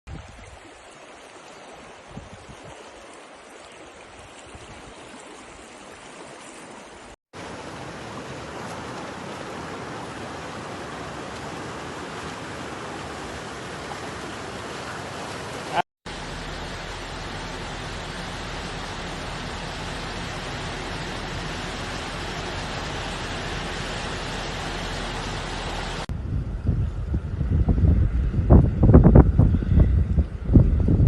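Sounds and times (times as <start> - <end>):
steady rain falling: 7.4 - 26.1.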